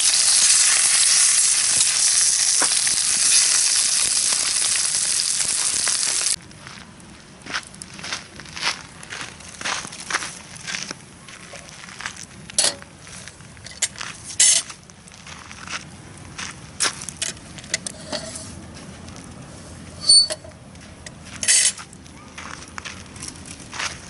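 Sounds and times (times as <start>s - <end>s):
campfire wood crackling: 0.0s - 17.8s.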